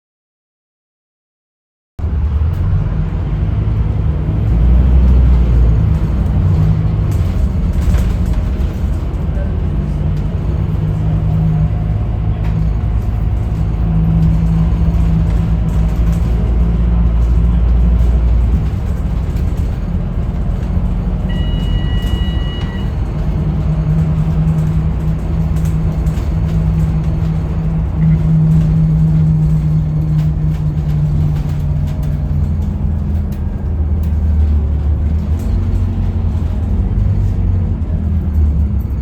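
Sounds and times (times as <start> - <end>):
bus diesel engine droning: 2.0 - 39.0
short electronic beep: 21.3 - 23.0.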